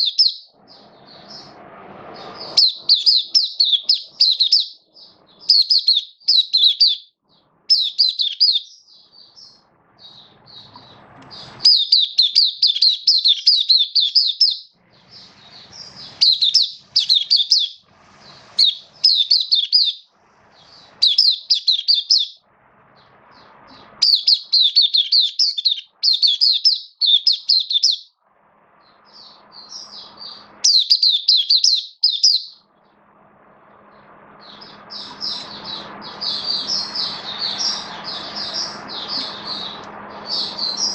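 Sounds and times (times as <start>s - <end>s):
bird twittering song: 0.0s - 28.2s, 28.8s - 32.7s, 33.8s - 40.9s.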